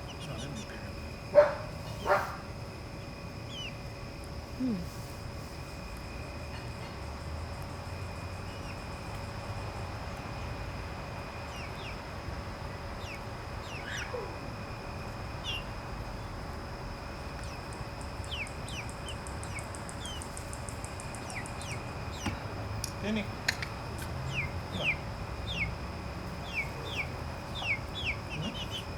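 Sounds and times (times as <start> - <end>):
low background rumble: 0.0 - 28.9
chicks peeping: 3.5 - 3.8, 11.4 - 12.1, 12.9 - 14.4, 15.0 - 15.8, 17.3 - 22.5, 23.5 - 28.9.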